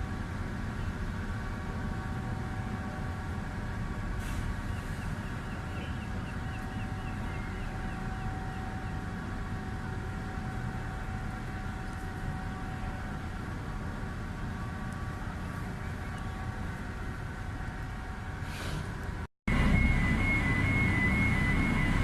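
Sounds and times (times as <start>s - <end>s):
ferry engines rumbling: 0.0s - 22.0s
short hiss: 18.4s - 18.9s.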